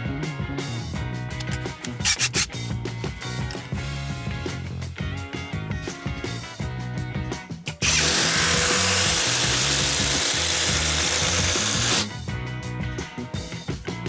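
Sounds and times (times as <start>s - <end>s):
impact driver running: 1.2s - 7.0s, 7.6s - 12.1s.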